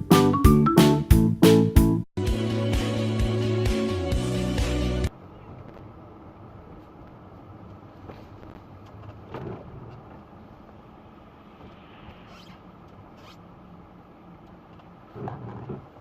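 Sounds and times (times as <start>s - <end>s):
car engine and road noise: 5.0s - 16.0s.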